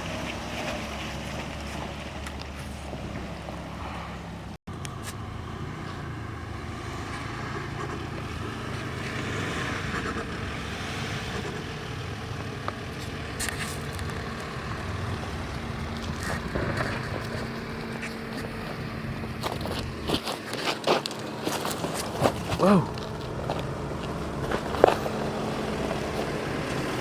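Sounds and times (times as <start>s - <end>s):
suv engine driving off-road: 0.0s - 27.0s
tyre and body noise: 16.0s - 25.4s.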